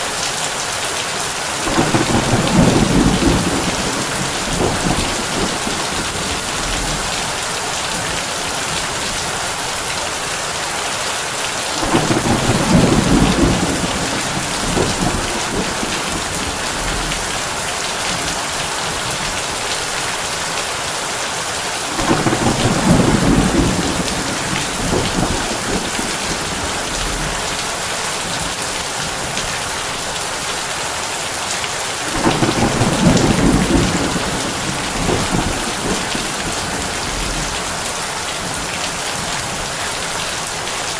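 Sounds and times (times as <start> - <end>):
heavy rain on a tin roof: 0.0 - 40.9
low thunder rumble: 1.6 - 8.2, 11.8 - 18.3, 21.9 - 28.5, 32.1 - 39.6.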